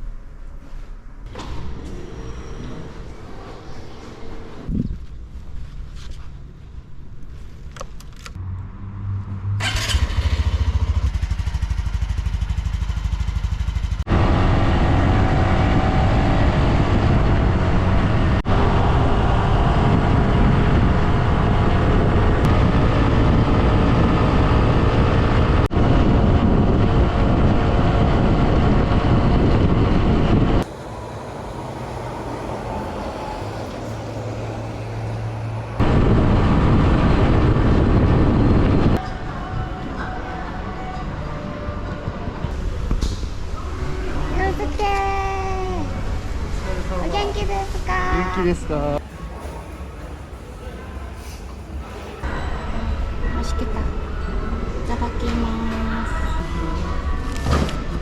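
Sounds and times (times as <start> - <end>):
road and wind noise: 0.0 - 58.0
motorcycle engine running: 9.6 - 30.3.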